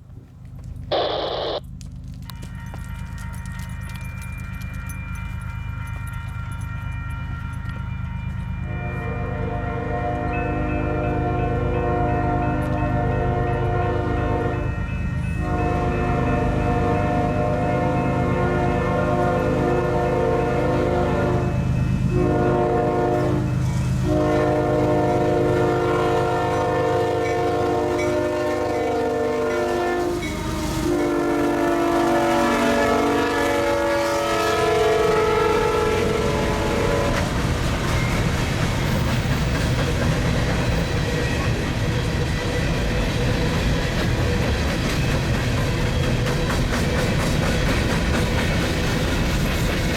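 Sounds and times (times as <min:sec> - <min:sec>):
low rumble of train: 0:00.0 - 0:49.9
locomotive air horn blasts: 0:08.7 - 0:14.7, 0:15.4 - 0:37.4.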